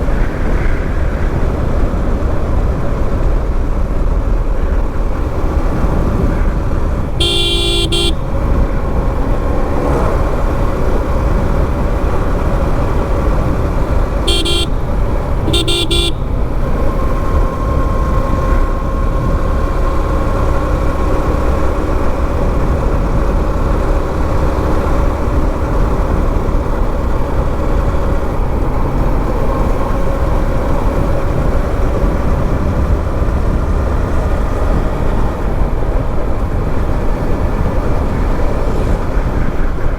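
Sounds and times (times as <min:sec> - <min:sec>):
motorcycle wind and road noise: 0:00.0 - 0:39.9
vehicle horn honking: 0:07.1 - 0:08.4, 0:14.2 - 0:16.6.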